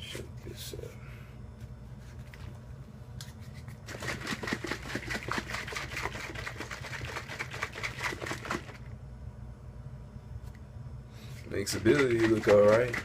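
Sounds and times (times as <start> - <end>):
liquid sloshing in shaker bottle: 3.8 - 8.9, 11.4 - 13.0.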